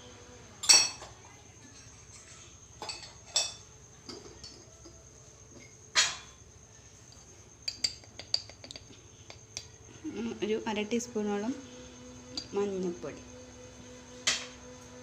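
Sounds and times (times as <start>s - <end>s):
metal spoon clinking against bowl: 7.1s - 9.7s.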